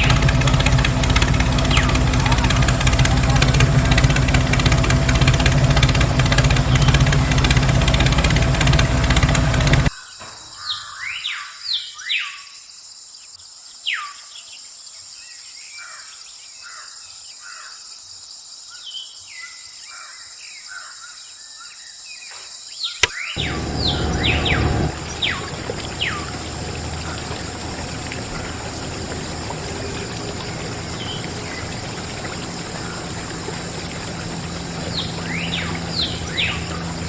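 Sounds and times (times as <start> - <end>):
loud machine noise: 0.0 - 9.9, 23.4 - 37.0
small birds chirping: 0.0 - 12.4, 23.0 - 37.0.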